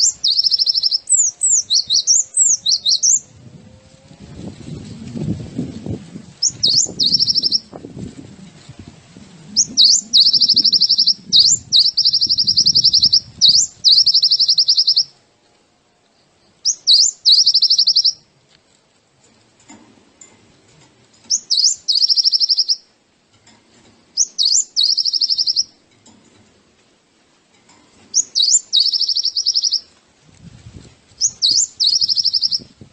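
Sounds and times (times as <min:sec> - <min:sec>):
songbird singing buzzy trills: 0:00.0 - 0:03.5, 0:04.7 - 0:07.8, 0:09.4 - 0:15.2, 0:16.0 - 0:18.3, 0:21.1 - 0:23.4, 0:24.0 - 0:26.2, 0:27.7 - 0:32.9
soft low rumbling: 0:02.5 - 0:13.8.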